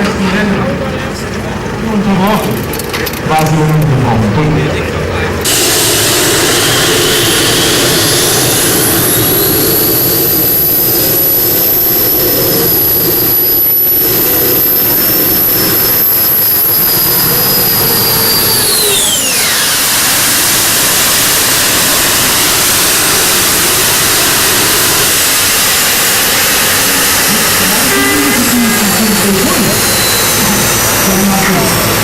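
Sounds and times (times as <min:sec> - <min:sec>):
high engine whine: 0:00.0 - 0:32.0
loud engine rush: 0:00.0 - 0:32.0.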